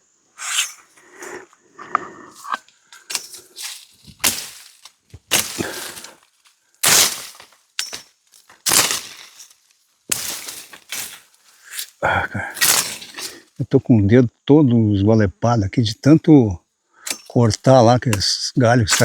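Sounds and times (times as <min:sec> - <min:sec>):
branches rustling and crackling: 0:00.4 - 0:13.6, 0:17.1 - 0:19.0.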